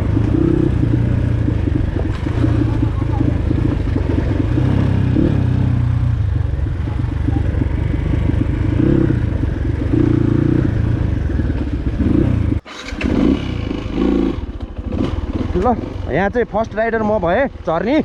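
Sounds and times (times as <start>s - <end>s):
bike rattling and clatter: 0.0s - 5.4s
dirt bike engine running: 0.0s - 18.0s.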